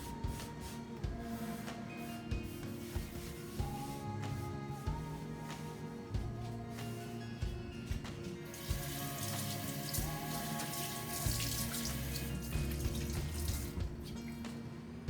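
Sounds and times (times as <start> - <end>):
background music: 0.0 - 15.0
water running: 8.0 - 14.7.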